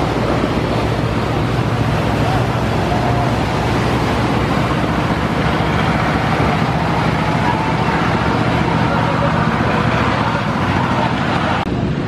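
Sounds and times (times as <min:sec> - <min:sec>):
rushing water hiss: 0:00.0 - 0:11.6
boat engines droning: 0:00.0 - 0:12.0.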